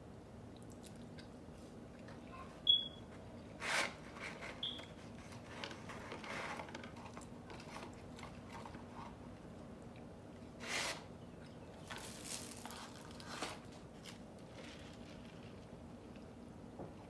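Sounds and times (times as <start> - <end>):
soft chewing: 0.5 - 2.6, 7.0 - 10.6, 11.3 - 16.5.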